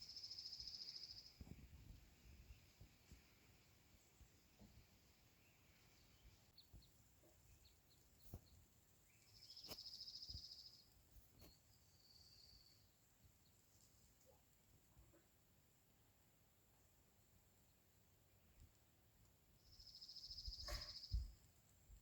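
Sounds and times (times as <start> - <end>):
faint high chirps: 7.5 - 13.0, 19.6 - 21.4.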